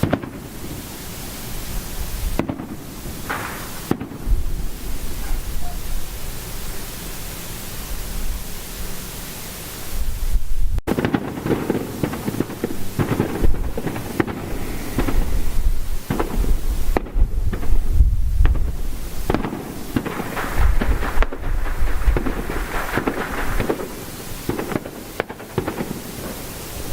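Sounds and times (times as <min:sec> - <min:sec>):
fireworks hissing: 0:00.0 - 0:26.9
fireworks popping and crackling: 0:00.0 - 0:26.9
low rumbling booms: 0:01.6 - 0:06.9, 0:09.9 - 0:24.0.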